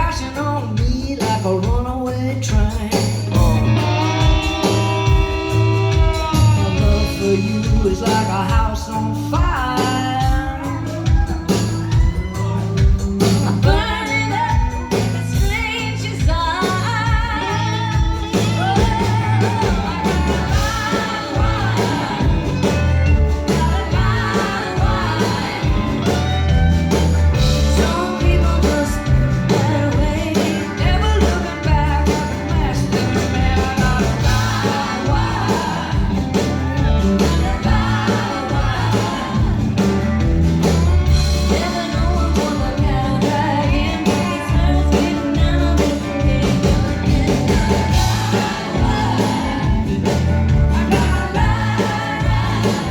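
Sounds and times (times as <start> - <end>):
live rock band playing: 0.0 - 52.9
person singing: 0.0 - 52.9.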